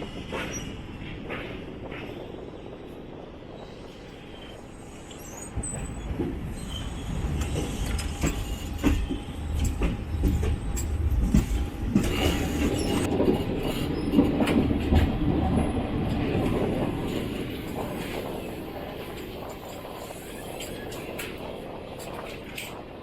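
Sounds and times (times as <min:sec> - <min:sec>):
train wheels rumbling on track: 0:00.0 - 0:23.0
wheel squeal: 0:05.1 - 0:09.8.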